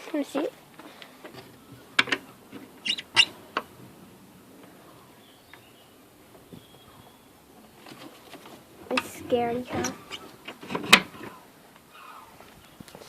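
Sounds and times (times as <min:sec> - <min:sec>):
guinea pig squeaking: 0:02.8 - 0:03.4.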